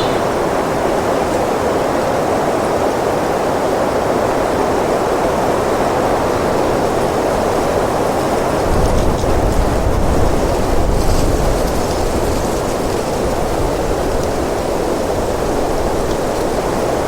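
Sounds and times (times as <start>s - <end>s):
wind blowing: 0.0s - 1.3s.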